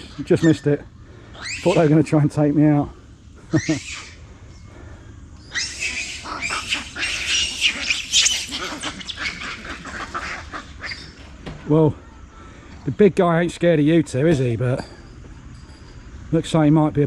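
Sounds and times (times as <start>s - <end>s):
monkeys screaming in a fight: 0.0s - 2.3s, 3.4s - 11.4s.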